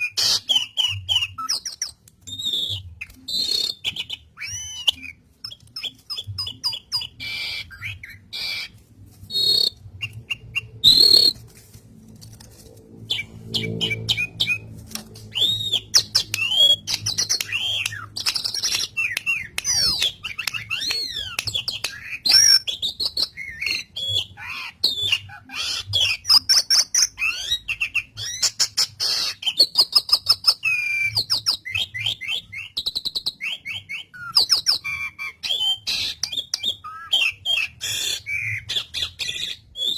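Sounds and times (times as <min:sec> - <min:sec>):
starling singing: 0:02.4 - 0:11.4, 0:13.1 - 0:32.8, 0:33.4 - 0:39.9.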